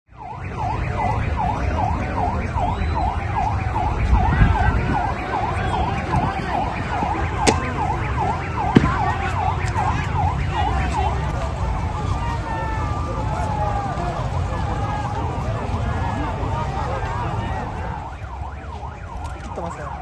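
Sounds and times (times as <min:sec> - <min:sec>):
emergency siren yelping: 0:00.1 - 0:20.0.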